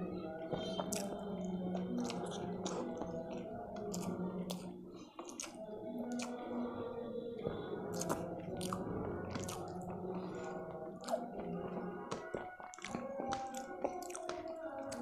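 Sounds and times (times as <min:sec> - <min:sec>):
close chewing: 0:00.8 - 0:06.6, 0:07.4 - 0:15.0
wet mouth clicks: 0:03.9 - 0:06.4, 0:11.0 - 0:11.3.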